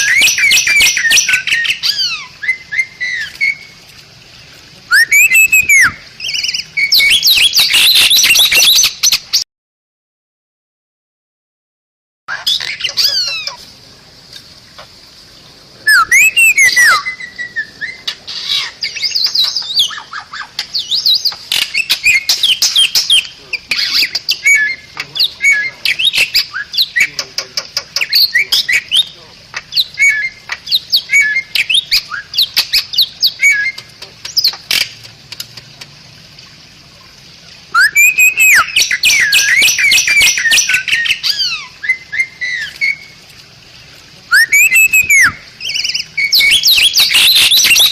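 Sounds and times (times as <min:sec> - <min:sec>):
bird whistling and chattering: 0:00.0 - 0:03.8, 0:04.9 - 0:09.4, 0:12.3 - 0:13.6, 0:15.8 - 0:34.9, 0:37.7 - 0:43.1, 0:44.3 - 0:47.9.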